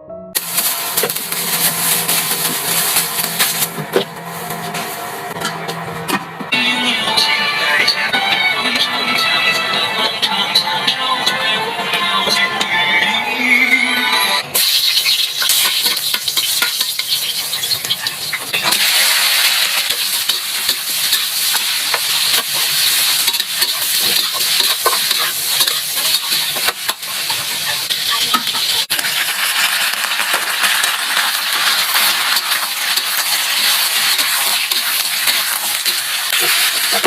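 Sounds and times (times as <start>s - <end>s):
food sizzling in a pan: 0.4s - 5.4s, 14.5s - 37.0s.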